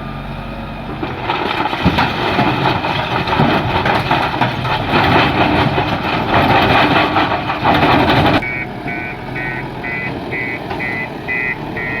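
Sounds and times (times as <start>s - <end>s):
heavy diesel engine running: 0.0s - 12.0s
reversing alarm beeping: 8.4s - 12.0s.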